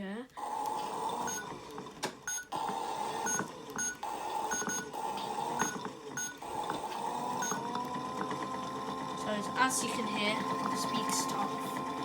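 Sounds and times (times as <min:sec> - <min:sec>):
small motor whirring: 0:00.4 - 0:12.0
short beeps: 0:03.3 - 0:04.9, 0:05.6 - 0:06.4, 0:07.4 - 0:07.6.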